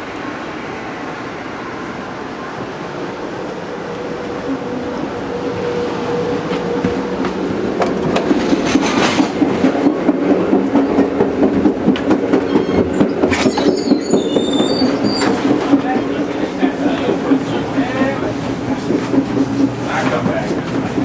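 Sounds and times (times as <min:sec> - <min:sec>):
train wheels clattering on rails: 0:03.4 - 0:21.0
high squeals: 0:12.5 - 0:16.2.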